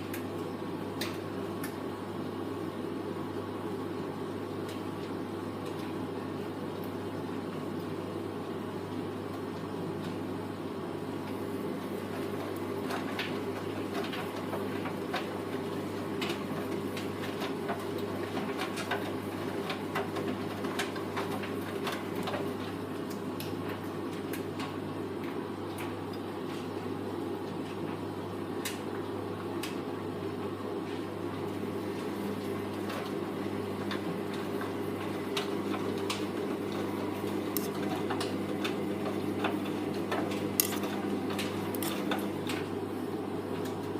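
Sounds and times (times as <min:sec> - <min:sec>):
washing machine motor hum: 0:00.0 - 0:43.9.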